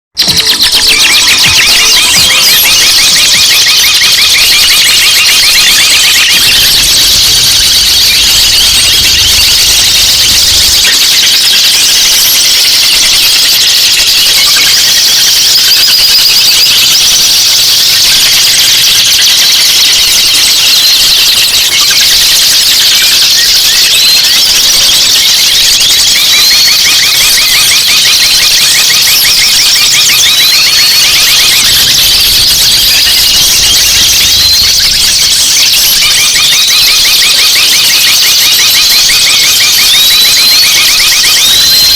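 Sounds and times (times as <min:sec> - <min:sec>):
rising bird whistles: 0:00.1 - 0:41.9
songbirds chirping and trilling: 0:00.2 - 0:22.3, 0:26.9 - 0:37.5.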